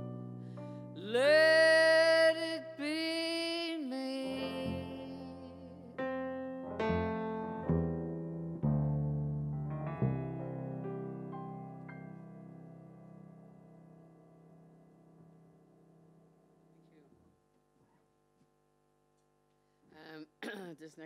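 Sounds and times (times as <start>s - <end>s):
keyboard chords: 0.0s - 2.0s, 4.0s - 17.0s
woman singing long notes: 1.0s - 6.0s
upright double bass: 6.8s - 10.7s.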